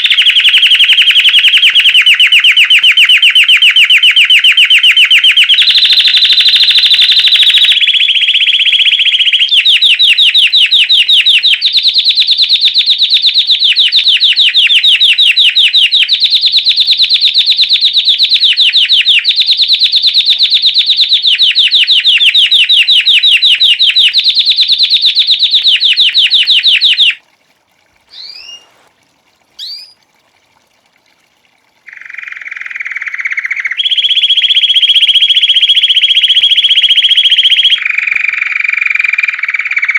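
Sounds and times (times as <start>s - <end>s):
canary singing trills: 0.0s - 11.7s, 21.3s - 27.2s, 28.1s - 28.9s, 29.6s - 30.0s
short rising chirps: 28.1s - 28.9s, 29.6s - 30.0s.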